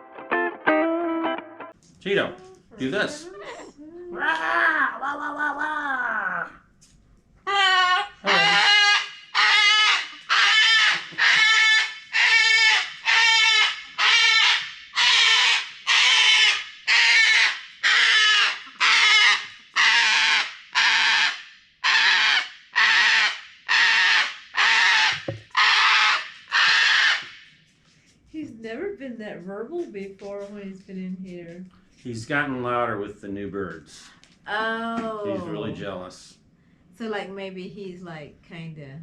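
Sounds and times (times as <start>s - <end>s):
cockatoo screaming: 2.8s - 6.6s, 7.4s - 27.4s.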